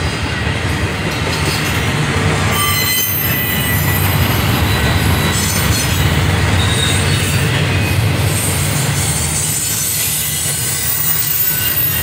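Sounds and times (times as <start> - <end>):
train wheels rumbling on rail: 0.0 - 12.0
high wheel squeal: 2.5 - 12.0.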